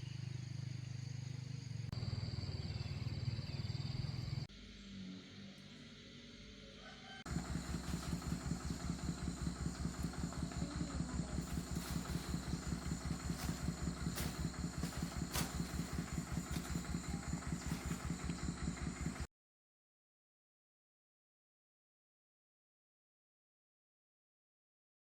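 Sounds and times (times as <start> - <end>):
tractor diesel engine idling: 7.3 - 19.3.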